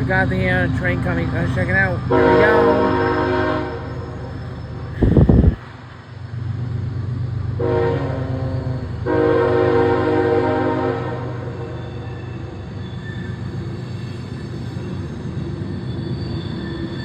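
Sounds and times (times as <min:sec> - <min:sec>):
low locomotive rumble: 0:00.0 - 0:17.0
locomotive air horn blasts: 0:02.1 - 0:03.9, 0:07.6 - 0:11.7.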